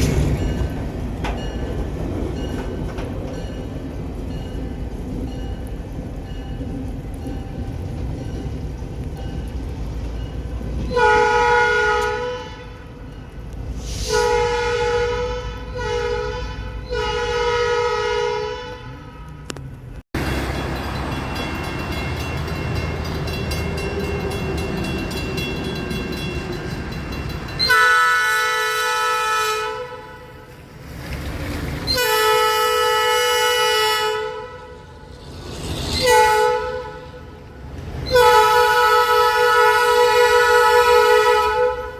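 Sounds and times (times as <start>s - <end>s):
low rumble of train: 0.0s - 41.9s
locomotive horn: 10.9s - 13.0s, 13.9s - 19.5s, 27.6s - 30.6s, 31.9s - 35.1s, 36.0s - 41.9s.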